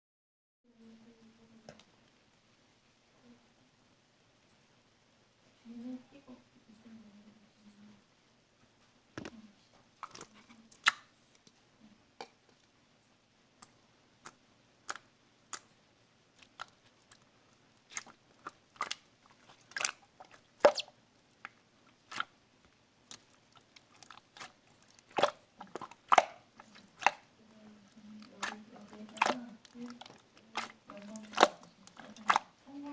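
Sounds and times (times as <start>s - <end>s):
slime squeezed with sticky pops: 17.8s - 22.3s, 23.1s - 27.3s, 28.2s - 32.5s.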